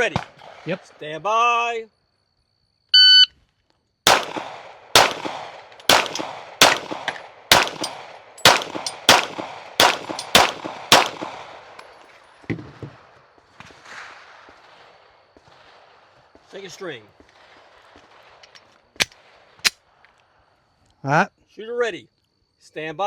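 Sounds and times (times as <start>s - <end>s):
pistol shots echoing: 4.0s - 12.1s.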